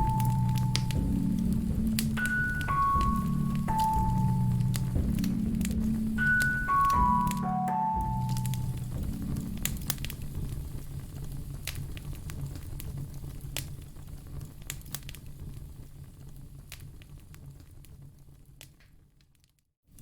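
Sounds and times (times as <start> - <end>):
low steady rumble: 0.0 - 7.4, 8.0 - 14.7
wood fire crackling: 0.0 - 20.0
sharp pops of fire: 8.1 - 19.0.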